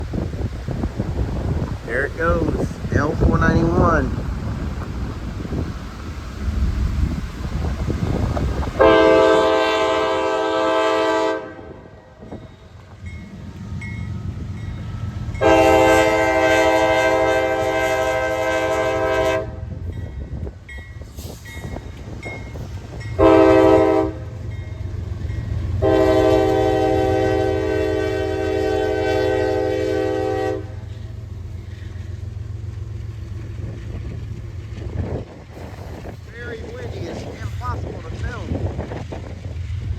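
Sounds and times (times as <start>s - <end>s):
passing train rumble: 0.0s - 39.9s
locomotive air horn blasts: 8.8s - 12.0s, 15.4s - 19.7s, 23.2s - 24.4s, 25.8s - 31.0s.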